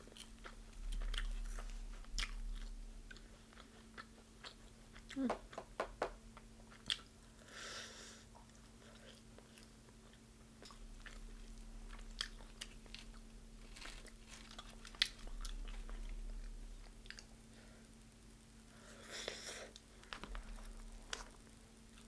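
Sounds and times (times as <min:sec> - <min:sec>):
person chewing fried chicken: 0:00.0 - 0:05.3, 0:06.7 - 0:07.2, 0:08.3 - 0:17.4
small crunches: 0:11.9 - 0:16.2.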